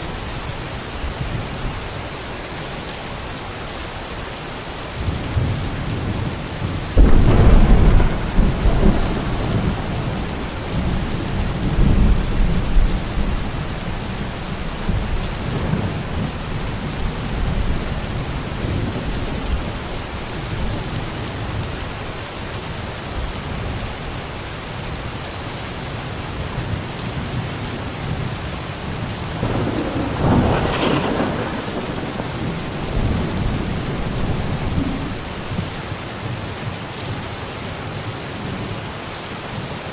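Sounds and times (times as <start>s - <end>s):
steady rain falling: 0.0s - 39.9s
thunder clap and rumble: 5.0s - 21.8s, 26.6s - 36.4s.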